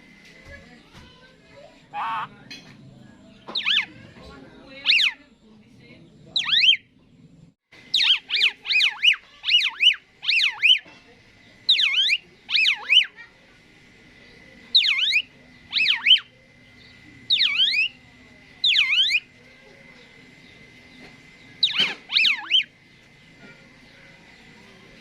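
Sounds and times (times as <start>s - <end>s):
starling whistling calls: 1.9s - 2.4s, 3.4s - 5.2s, 6.3s - 6.9s, 7.8s - 10.9s, 11.5s - 13.2s, 14.3s - 19.4s, 20.0s - 24.7s.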